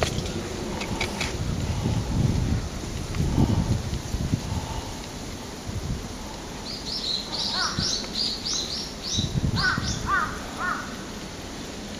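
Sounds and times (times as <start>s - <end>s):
birds chirping: 6.6s - 11.2s.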